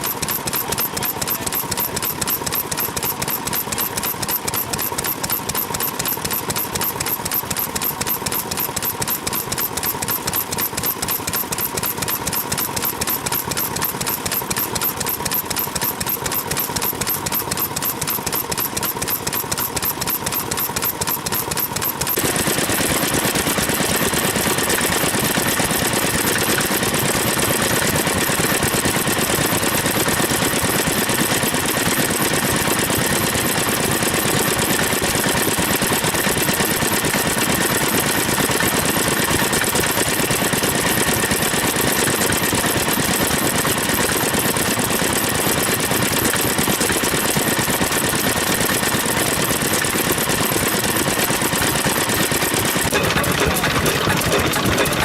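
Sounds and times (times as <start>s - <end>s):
stationary engines running: 0.0s - 55.0s.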